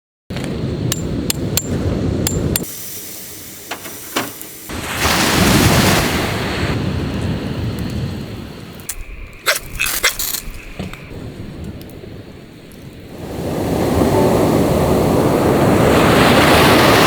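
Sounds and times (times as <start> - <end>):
sea waves washing ashore: 0.4 - 17.0
sharp crackles: 6.7 - 13.2.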